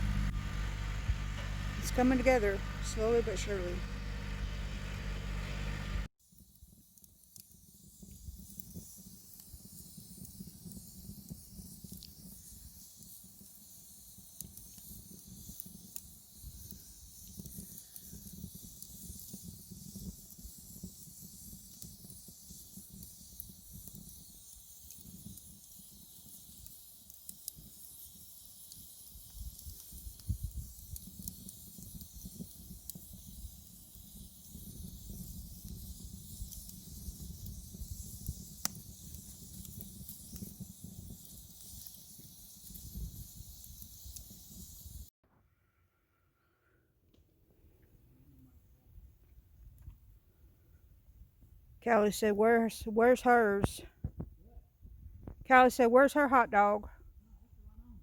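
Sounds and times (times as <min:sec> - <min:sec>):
tractor diesel engine idling: 0:00.0 - 0:06.1
wood fire crackling: 0:00.0 - 0:45.1, 0:51.8 - 0:54.3.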